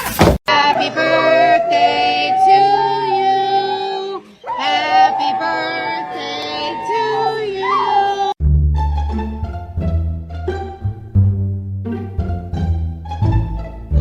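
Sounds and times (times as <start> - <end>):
high-pitched singing with music: 0.5 - 8.4.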